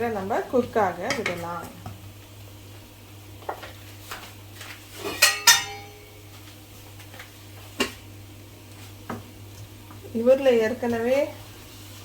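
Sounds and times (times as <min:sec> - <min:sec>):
metal lid clinking on pot: 0:05.1 - 0:06.1.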